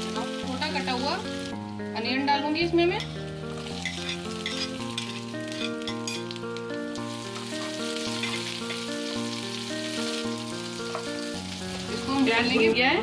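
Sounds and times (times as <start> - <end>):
gentle instrumental music: 0.0 - 13.0
onion sizzling in hot oil: 0.0 - 13.0.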